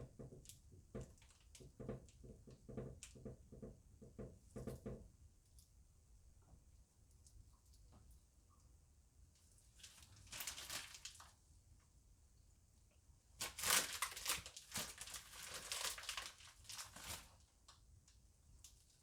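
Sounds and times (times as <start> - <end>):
plastic bag crinkling: 9.8 - 11.3, 13.4 - 17.5.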